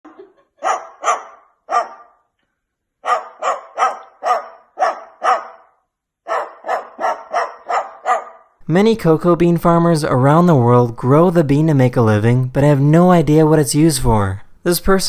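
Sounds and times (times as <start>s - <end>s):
dog barking: 0.6s - 2.3s, 3.0s - 8.6s.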